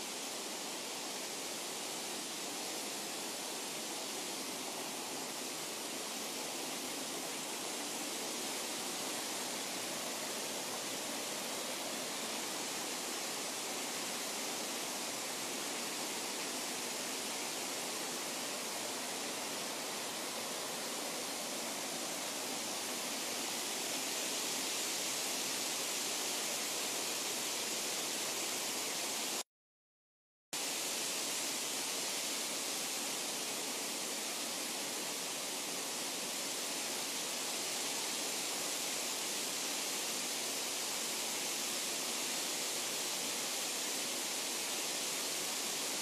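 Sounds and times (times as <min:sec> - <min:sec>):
flowing water rushing: 0:00.0 - 0:29.4, 0:30.6 - 0:46.0.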